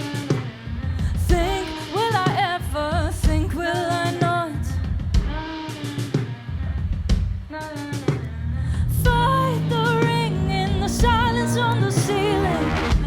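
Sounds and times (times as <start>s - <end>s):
lead singer singing: 9.0s - 13.0s
live band playing: 9.1s - 13.0s.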